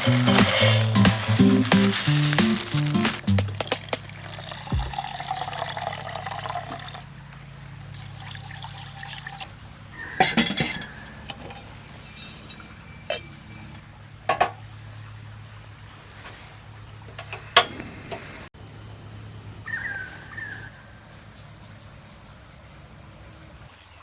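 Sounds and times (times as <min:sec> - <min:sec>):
glass clinking: 0:00.0 - 0:03.1
liquid pouring into vessel: 0:03.9 - 0:07.0.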